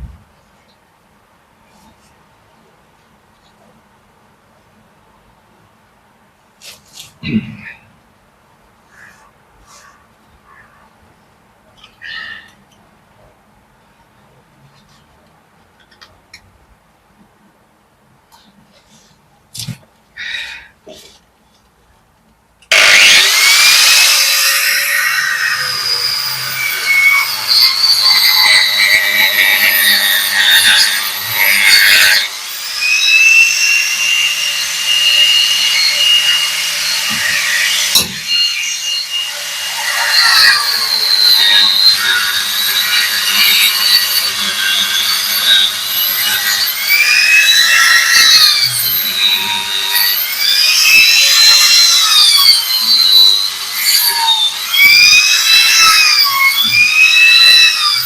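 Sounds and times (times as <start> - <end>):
angle grinder cutting mortar: 22.7 - 58.0.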